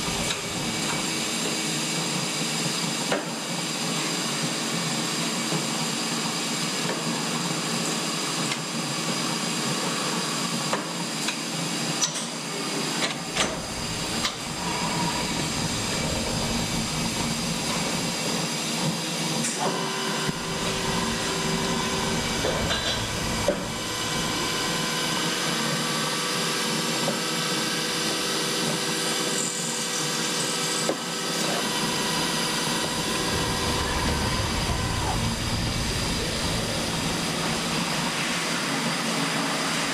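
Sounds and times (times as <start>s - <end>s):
machine hum with held tones: 0.0s - 1.5s, 13.2s - 18.4s, 19.9s - 25.8s, 31.5s - 38.4s.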